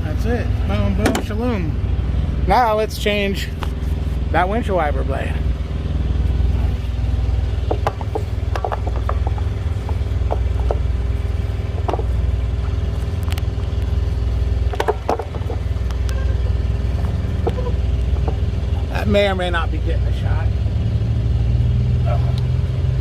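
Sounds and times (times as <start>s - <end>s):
diesel truck engine idling: 0.0s - 23.0s
light clicks and knocks: 7.6s - 10.9s, 11.7s - 12.2s, 14.7s - 16.2s.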